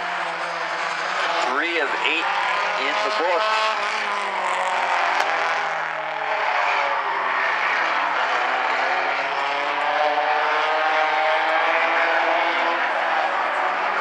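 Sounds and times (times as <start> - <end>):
race car engines droning: 0.0 - 14.0.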